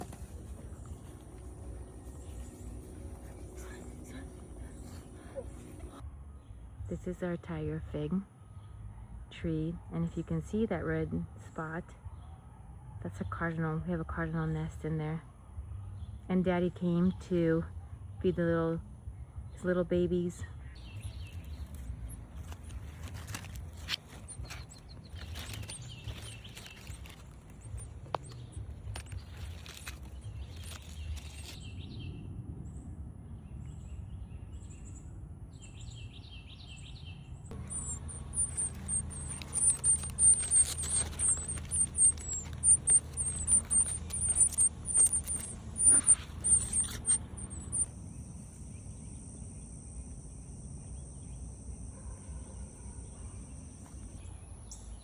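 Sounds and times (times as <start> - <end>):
birds chirping: 0.0 - 7.4, 19.6 - 32.1, 33.5 - 55.0
high insect buzz: 37.5 - 51.8.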